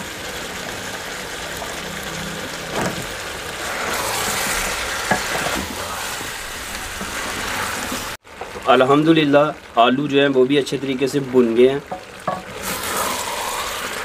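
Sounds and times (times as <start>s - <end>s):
potatoes sizzling in a pot: 0.0s - 14.0s.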